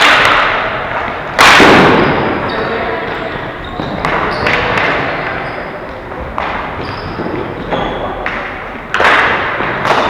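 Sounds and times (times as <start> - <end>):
hockey sticks knocking ball: 0.0 - 10.0.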